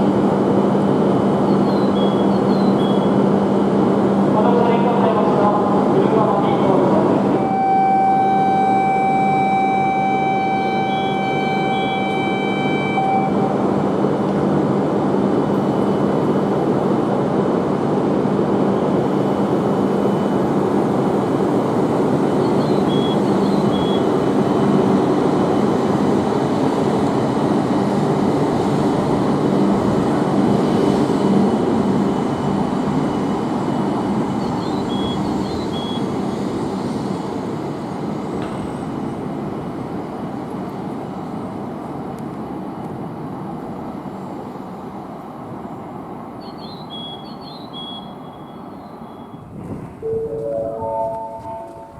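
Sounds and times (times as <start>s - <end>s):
train rushing past: 0.0s - 46.4s, 47.9s - 51.9s.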